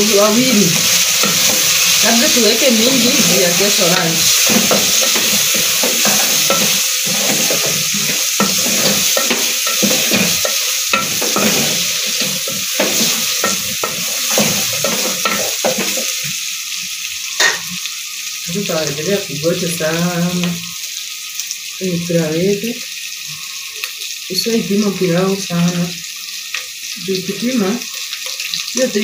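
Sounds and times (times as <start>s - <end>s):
meat sizzling in a pot: 0.0s - 29.0s
wooden spoon scraping a pot: 0.9s - 16.2s.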